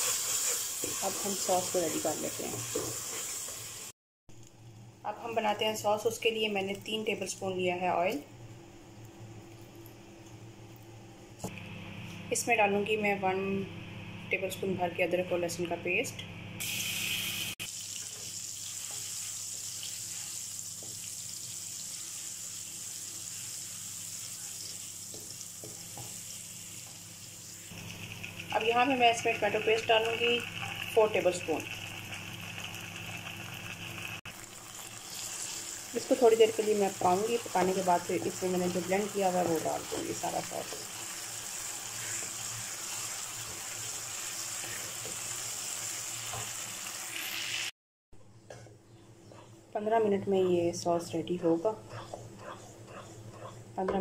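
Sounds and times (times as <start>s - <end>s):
paste sizzling in hot oil: 0.0s - 3.9s, 16.6s - 47.7s
wooden spatula scraping: 2.4s - 3.7s, 51.4s - 54.0s.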